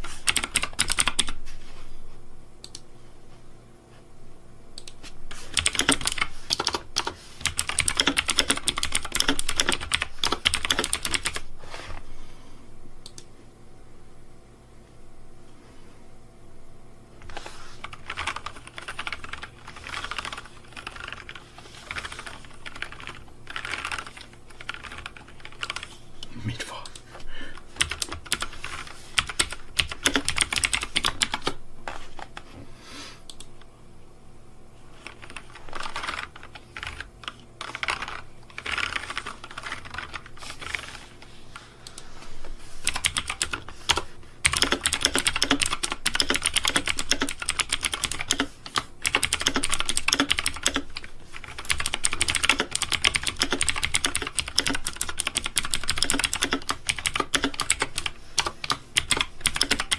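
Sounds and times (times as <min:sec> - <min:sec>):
fast typing on keyboard: 0:00.0 - 0:01.4, 0:05.4 - 0:11.4, 0:17.8 - 0:25.9, 0:27.7 - 0:32.4, 0:35.0 - 0:41.0, 0:42.8 - 0:59.9.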